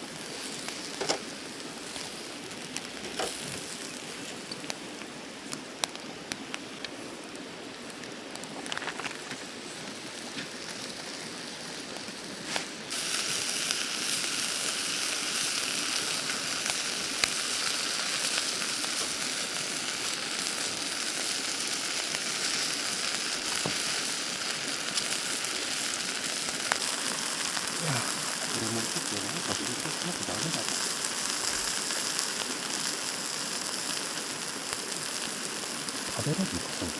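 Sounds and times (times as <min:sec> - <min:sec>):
food sizzling in a pan: 0:00.0 - 0:36.9.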